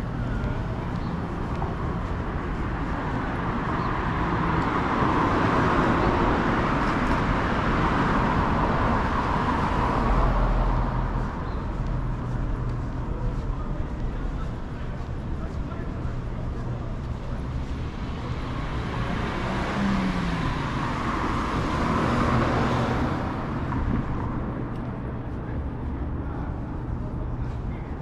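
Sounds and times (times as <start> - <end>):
vehicle passing by: 18.0 - 24.7.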